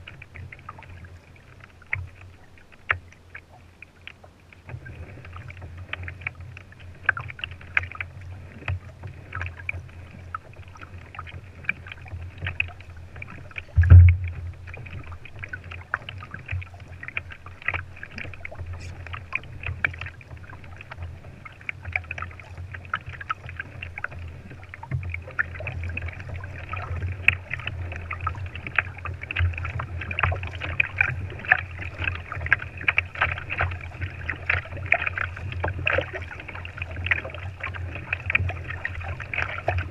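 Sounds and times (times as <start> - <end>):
water lapping against kayak hull: 0.0 - 39.9
low rumble: 13.7 - 14.8
heavy thump: 13.8 - 14.3.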